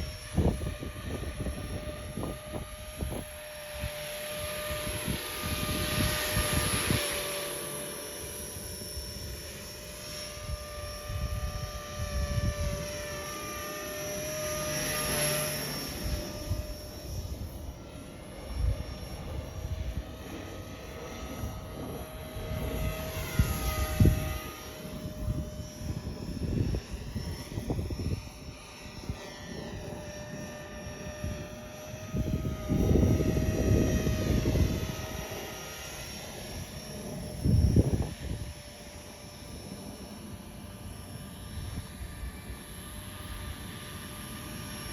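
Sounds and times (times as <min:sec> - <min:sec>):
wind buffeting microphone: 0:00.0 - 0:07.4, 0:10.3 - 0:17.6, 0:21.2 - 0:38.8
rc helicopter rotor whine: 0:00.0 - 0:44.9.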